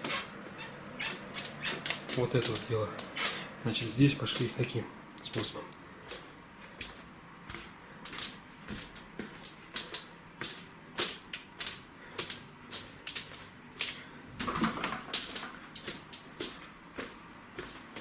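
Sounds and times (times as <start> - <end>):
floorboards clicking and crackling: 0.0 - 18.0.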